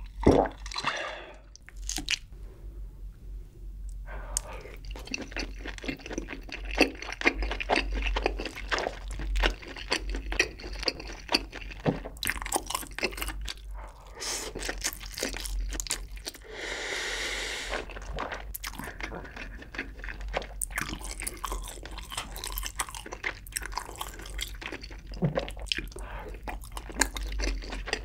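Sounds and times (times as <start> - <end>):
person chewing wet clicks: 3.9 - 13.7, 17.7 - 28.0.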